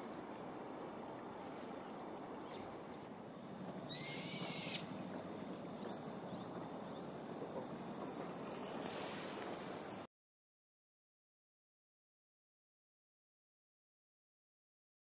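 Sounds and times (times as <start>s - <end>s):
bird whistled call: 3.9s - 4.9s
steady hiss: 8.4s - 10.1s.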